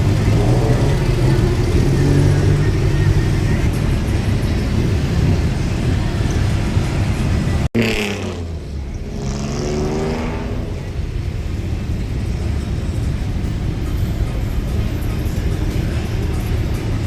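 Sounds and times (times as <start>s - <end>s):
vehicle engine revving past: 0.0s - 5.7s, 7.4s - 11.0s
traffic engine rumble: 0.0s - 17.0s.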